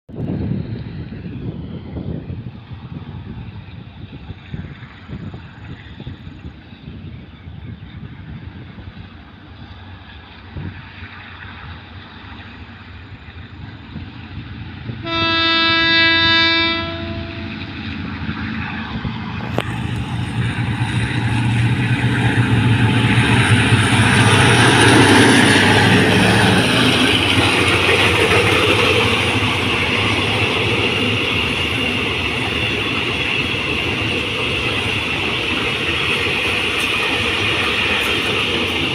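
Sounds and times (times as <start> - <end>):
train wheels on rails: 0.1 - 38.9
locomotive engine rumble: 0.2 - 38.9
locomotive horn blast: 15.0 - 17.7.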